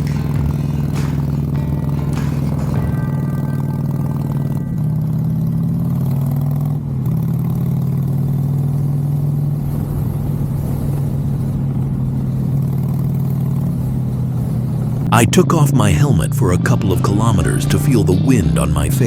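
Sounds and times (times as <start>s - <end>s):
motorcycle engine running: 0.0s - 15.1s.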